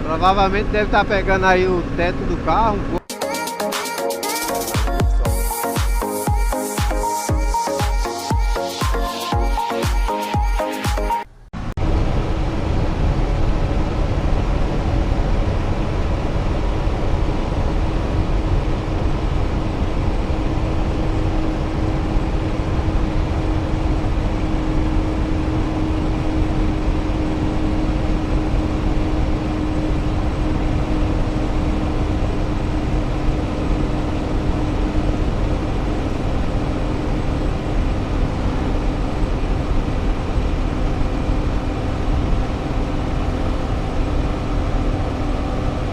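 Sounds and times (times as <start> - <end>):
car cabin road rumble: 11.6 - 45.9.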